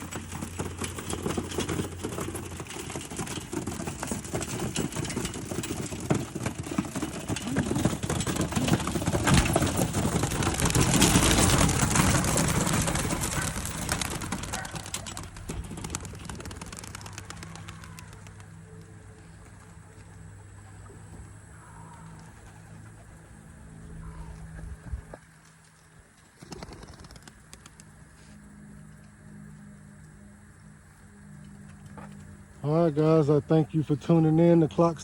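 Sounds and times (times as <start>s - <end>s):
pigeons wings flapping: 0.0s - 19.6s, 26.2s - 28.0s.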